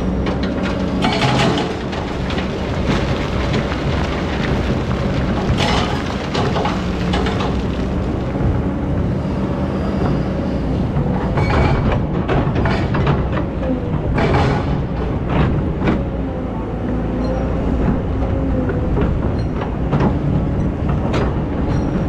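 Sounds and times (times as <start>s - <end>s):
excavator diesel engine running: 0.0s - 22.0s
bucket clattering sand and stones: 0.5s - 8.5s.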